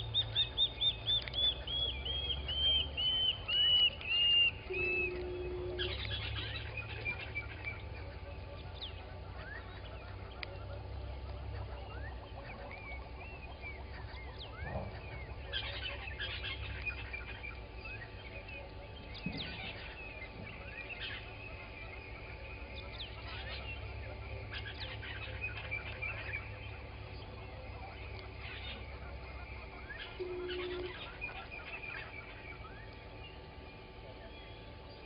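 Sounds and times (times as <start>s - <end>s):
birds chirping and whistling: 0.0s - 35.0s
loud bird calls: 0.0s - 35.0s
steady low hum: 0.0s - 35.0s.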